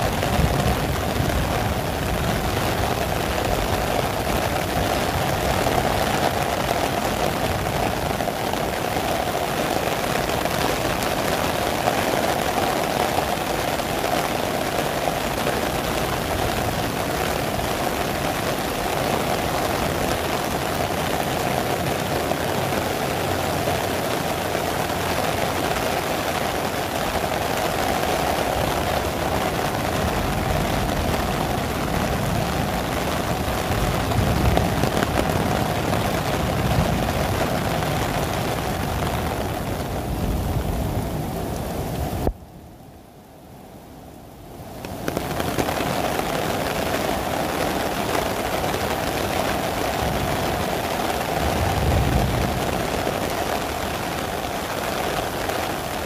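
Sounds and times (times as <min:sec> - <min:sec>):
heavy rain splashing on paving: 0:00.0 - 0:42.5, 0:44.6 - 0:56.0.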